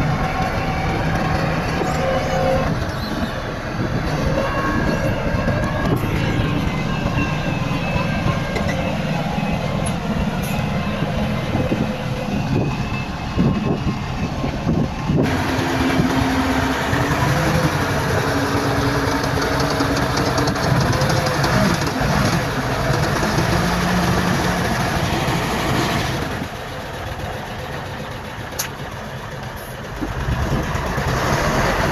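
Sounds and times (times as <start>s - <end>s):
heavy diesel machinery running: 0.0s - 31.9s.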